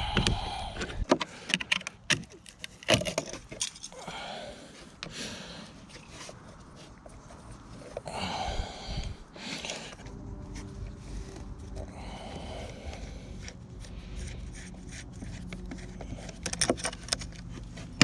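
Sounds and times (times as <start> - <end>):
metal parts rattling and scraping: 2.5 - 4.0, 14.2 - 18.0
metal parts knocking and clattering: 16.2 - 17.4.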